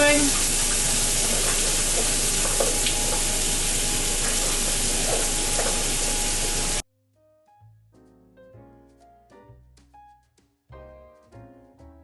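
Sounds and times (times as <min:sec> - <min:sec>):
meat sizzling on a grill: 0:00.0 - 0:06.8
soft piano music: 0:04.2 - 0:12.0.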